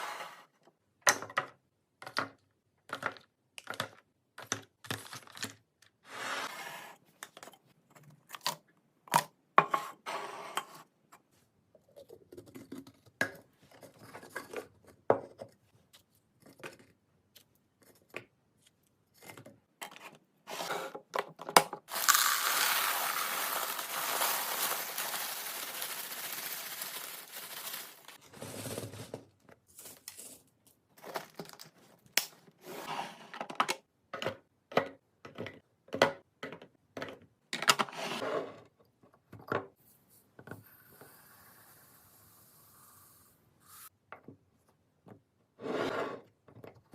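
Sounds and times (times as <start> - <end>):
plastic packaging clicks and rustling: 21.9 - 28.2.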